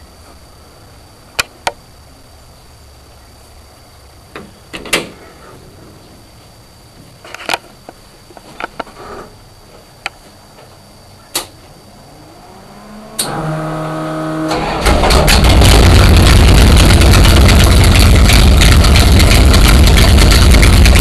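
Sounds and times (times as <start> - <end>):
car engine running loud: 12.2 - 21.0
starter motor whine and cranking: 13.2 - 21.0.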